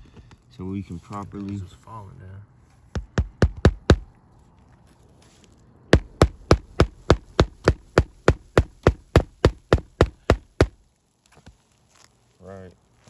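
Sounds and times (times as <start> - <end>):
hammer blows on roofing nail: 3.0 - 4.1, 5.9 - 10.8.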